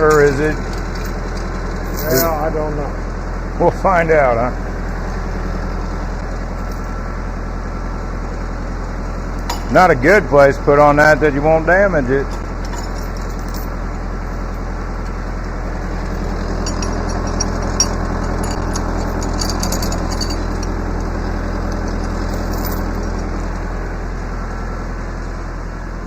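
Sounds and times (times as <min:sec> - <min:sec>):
light metallic clinks: 0:00.0 - 0:02.5, 0:09.4 - 0:09.9, 0:12.2 - 0:13.8, 0:15.9 - 0:23.3
engine idling: 0:00.0 - 0:26.0.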